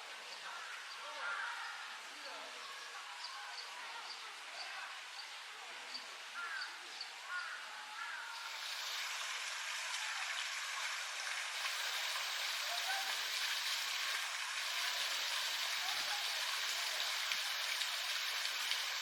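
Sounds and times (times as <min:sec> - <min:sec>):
rushing water: 0:08.3 - 0:19.0.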